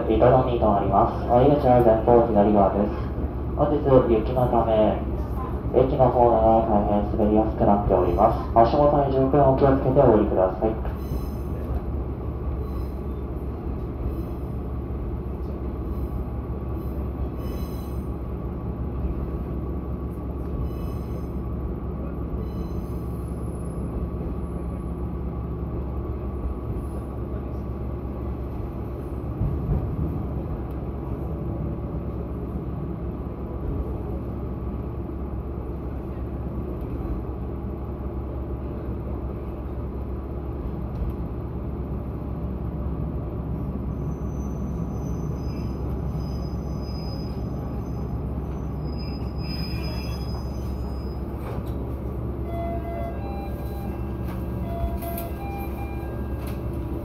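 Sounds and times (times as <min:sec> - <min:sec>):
railcar engine and wheel rumble: 0:00.0 - 0:57.0.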